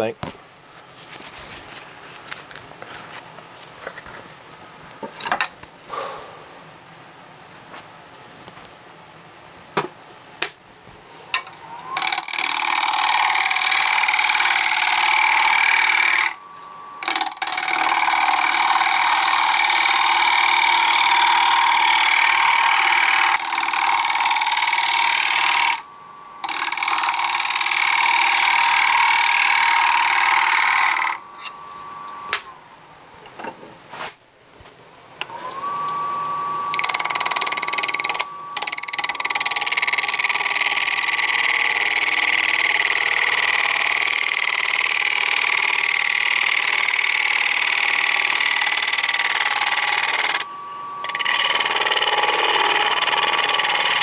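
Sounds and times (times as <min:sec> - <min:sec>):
lathe motor whine: 0:11.3 - 0:32.7, 0:35.2 - 0:54.0
lathe tool cutting wood: 0:11.6 - 0:16.4, 0:17.0 - 0:31.2, 0:36.6 - 0:54.0.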